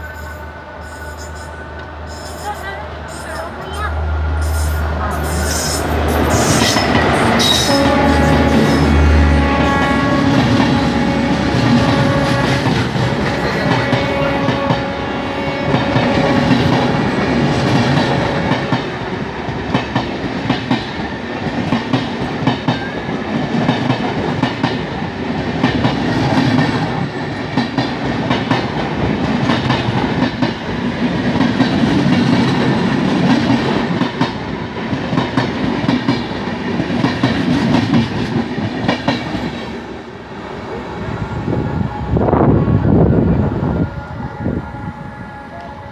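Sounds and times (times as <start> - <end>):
train wheels clacking on rails: 0.9 - 39.9.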